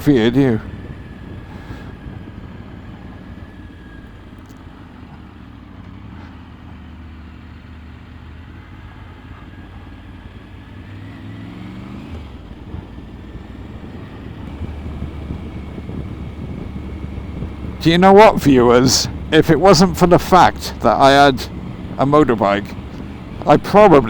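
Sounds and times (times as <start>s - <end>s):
wind noise: 0.0s - 4.6s, 12.4s - 24.0s
motorcycle engine running: 0.0s - 24.0s
road noise: 0.0s - 24.0s.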